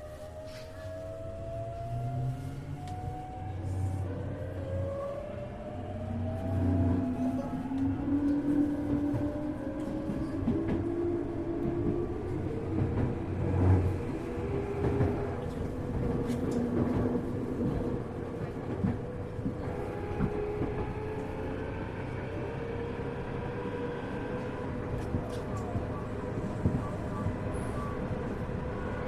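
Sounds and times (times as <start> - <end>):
train wheels rumbling on track: 0.0 - 29.0.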